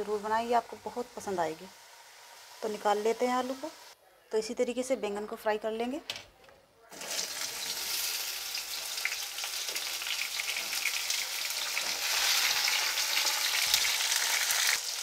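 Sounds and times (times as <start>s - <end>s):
eggplant sizzling in hot oil: 0.0s - 4.0s, 6.9s - 15.0s
oil crackling and popping: 7.0s - 15.0s.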